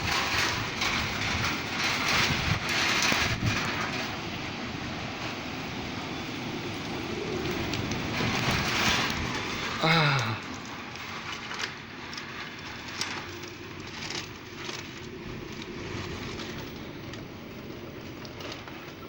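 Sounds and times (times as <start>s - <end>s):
strong wind blowing: 0.0s - 19.0s.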